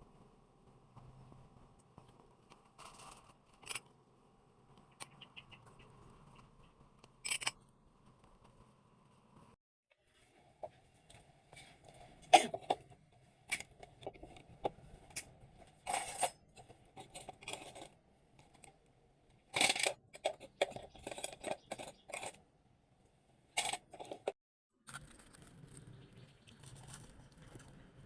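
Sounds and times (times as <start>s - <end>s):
kitchen items clicking and tapping: 19.6s - 22.4s.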